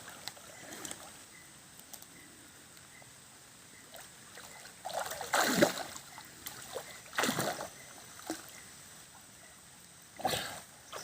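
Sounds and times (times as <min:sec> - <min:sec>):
splashing in shallow water: 0:03.8 - 0:08.7.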